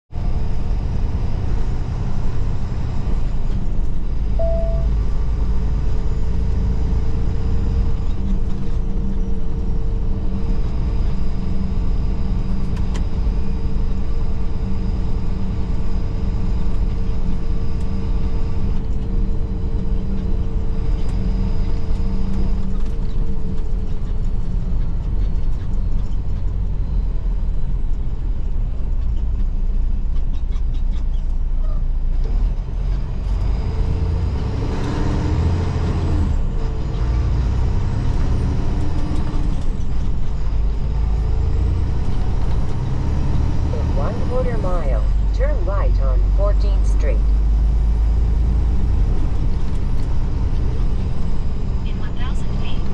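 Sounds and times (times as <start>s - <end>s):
road noise: 0.1s - 52.9s
truck diesel engine rumble: 0.1s - 52.9s
short beep: 4.4s - 5.2s.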